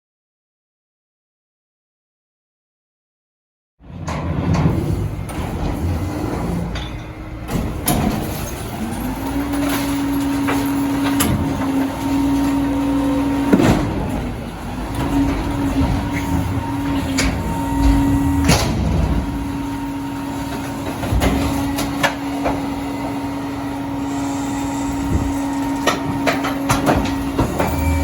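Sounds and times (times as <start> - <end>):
garbage truck running: 3.8 - 28.0
clanks and knocks: 3.9 - 12.0, 25.2 - 28.0
steady hum: 17.6 - 19.6.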